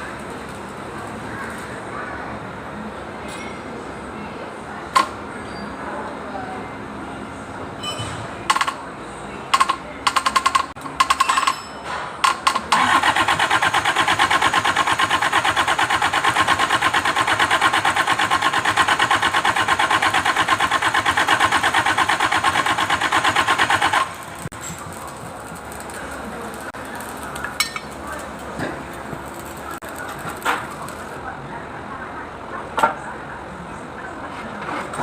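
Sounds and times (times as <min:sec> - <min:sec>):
diesel engine starting and running: 0:12.2 - 0:26.8.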